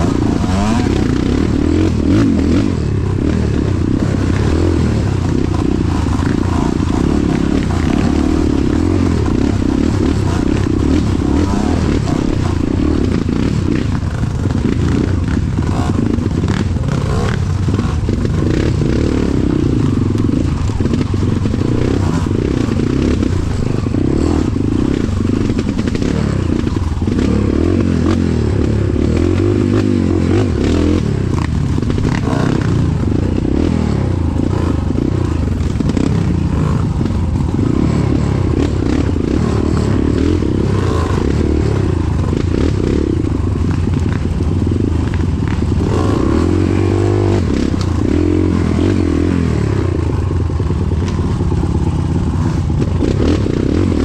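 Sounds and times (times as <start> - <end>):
motorcycle running: 0.0 - 54.0.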